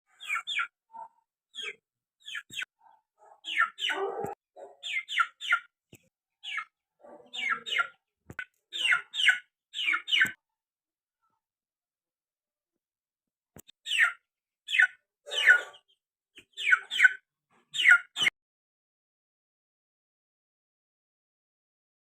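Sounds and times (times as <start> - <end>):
bird chirping: 0.1 - 10.4, 13.6 - 18.3
bird clucking calls: 14.7 - 17.2.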